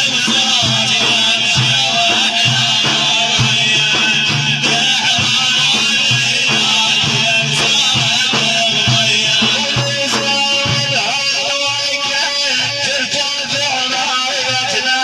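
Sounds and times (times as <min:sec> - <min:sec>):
steady drum beat: 0:00.0 - 0:12.0.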